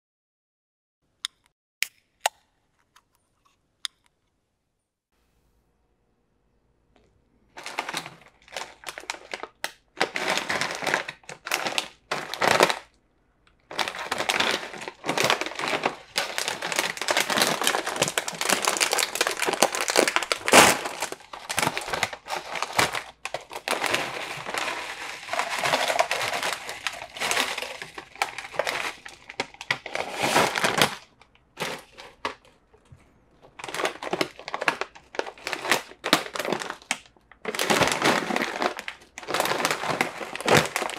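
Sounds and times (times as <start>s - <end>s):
chip bags crinkling and tearing: 7.5s - 32.6s, 33.4s - 40.9s.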